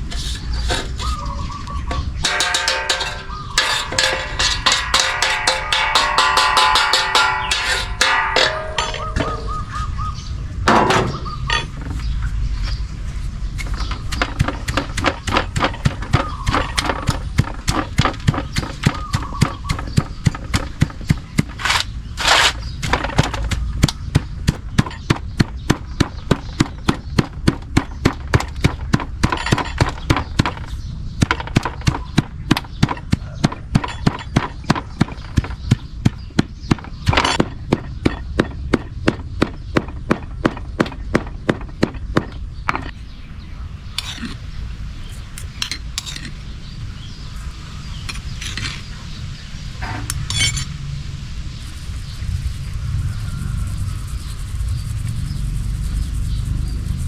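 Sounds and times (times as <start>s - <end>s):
rhythmic pounding knocks: 2.0s - 9.5s, 13.9s - 21.6s, 22.9s - 42.9s.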